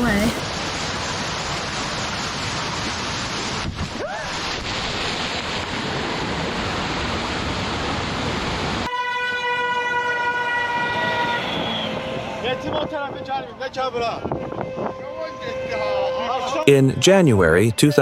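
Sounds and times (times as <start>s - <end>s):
car horn long note: 8.9s - 13.2s, 14.2s - 16.7s.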